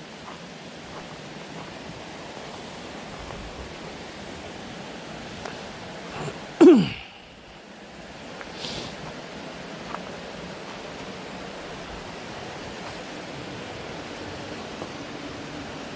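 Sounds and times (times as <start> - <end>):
steady hiss: 0.0 - 15.9
human vocal burst: 6.2 - 7.3.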